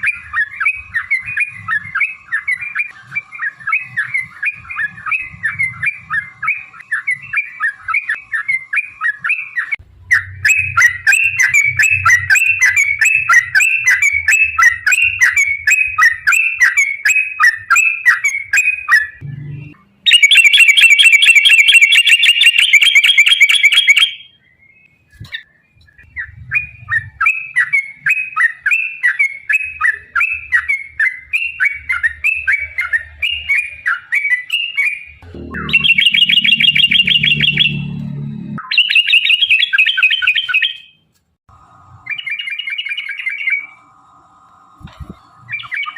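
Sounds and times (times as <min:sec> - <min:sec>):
bird singing chattering phrases: 0:31.8 - 0:38.0.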